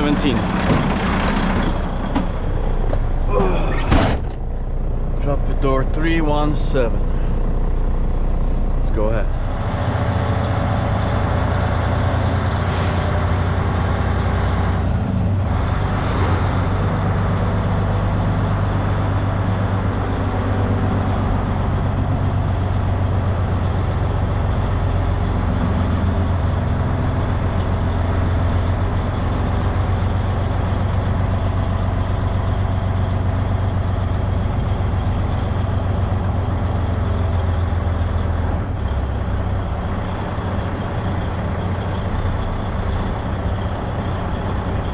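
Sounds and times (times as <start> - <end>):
diesel truck engine running: 0.0 - 44.9
air brake hiss: 12.6 - 13.3.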